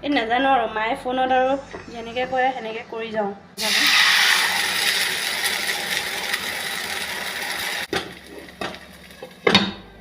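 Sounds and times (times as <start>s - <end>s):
batter sizzling on a griddle: 3.6s - 9.5s.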